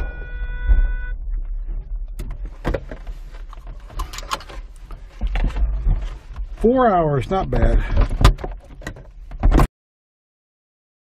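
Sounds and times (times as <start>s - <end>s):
steady low rumble: 0.0s - 8.8s.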